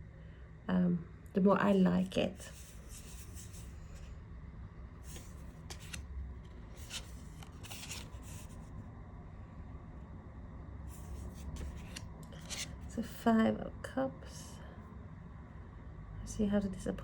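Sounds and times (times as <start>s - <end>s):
cards swishing: 2.5s - 3.8s, 5.1s - 6.0s, 6.7s - 8.6s, 11.0s - 12.8s.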